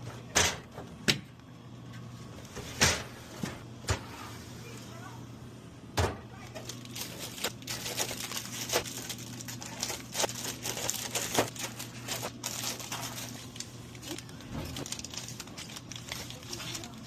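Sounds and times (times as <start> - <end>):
steady low hum: 0.0 - 17.0
plastic snack bags crinkling: 6.4 - 17.0.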